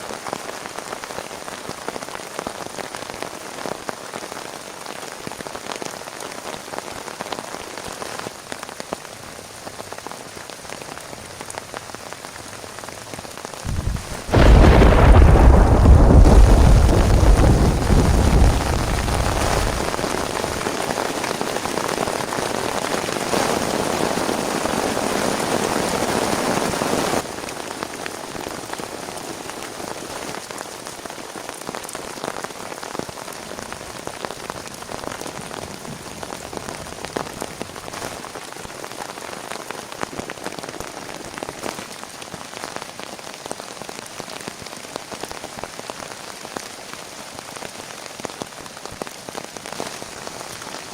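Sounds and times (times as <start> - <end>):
heavy rain falling: 0.0 - 50.9
low rumble of thunder: 13.7 - 20.6
raindrops ticking: 13.7 - 22.6.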